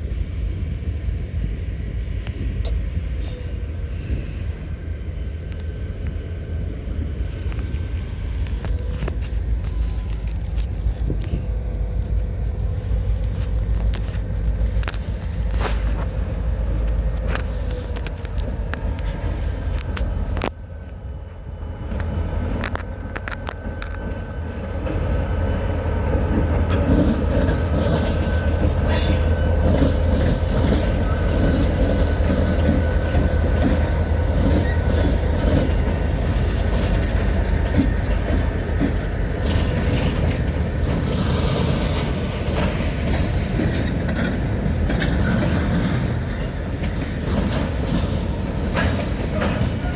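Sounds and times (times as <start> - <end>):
railroad cars rumbling: 0.0 - 49.9
wheels clicking over rail joints: 21.9 - 49.9
faint wheel squeal: 25.3 - 49.9.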